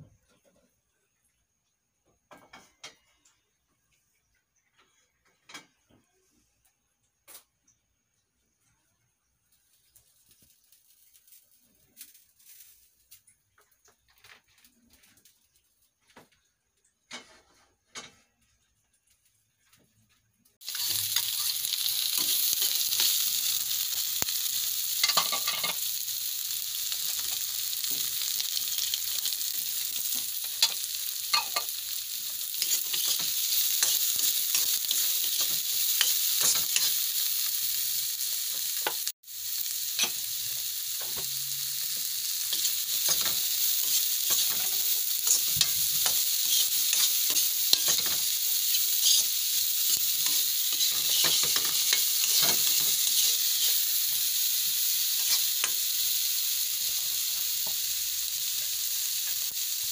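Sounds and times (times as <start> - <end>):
vegetables sizzling in oil: 9.2 - 16.3, 20.5 - 59.9
spatula scraping a pan: 27.0 - 37.2, 41.9 - 54.2.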